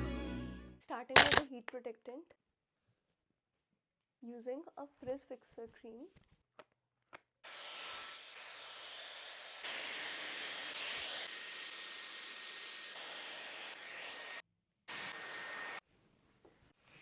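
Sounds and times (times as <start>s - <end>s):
hair styler blowing air: 7.5s - 15.8s.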